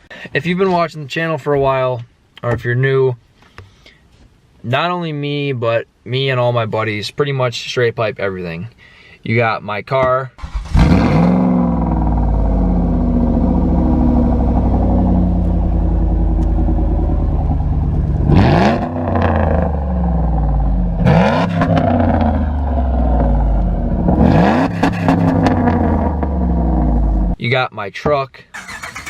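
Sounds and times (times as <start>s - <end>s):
car engine idling and revving: 10.4s - 27.4s.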